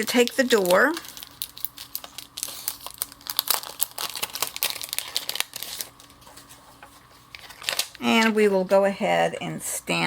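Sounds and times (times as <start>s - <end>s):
paper and plastic crinkling: 0.0s - 8.8s.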